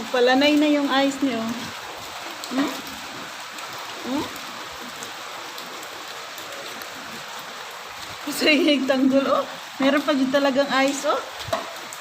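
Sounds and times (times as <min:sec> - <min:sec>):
rain and hail falling: 0:00.0 - 0:12.0.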